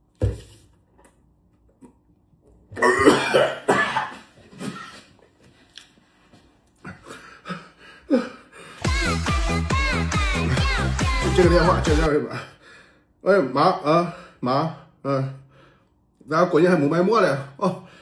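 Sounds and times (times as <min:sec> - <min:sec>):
person coughing: 0:02.8 - 0:05.1.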